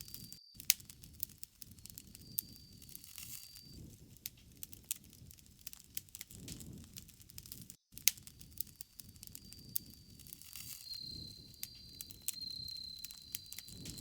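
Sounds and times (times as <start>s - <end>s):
high insect trill: 0.0s - 3.8s, 8.3s - 14.0s
bonfire crackling and popping: 0.0s - 14.0s
low rumble of burning wood: 0.0s - 14.0s.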